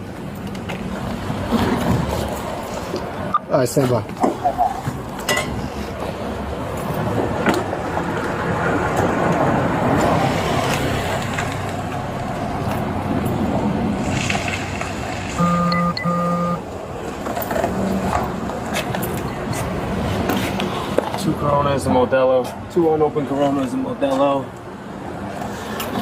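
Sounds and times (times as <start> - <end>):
street traffic: 0.0 - 26.0
vehicle passing: 4.3 - 22.2
short beeps: 15.4 - 16.6.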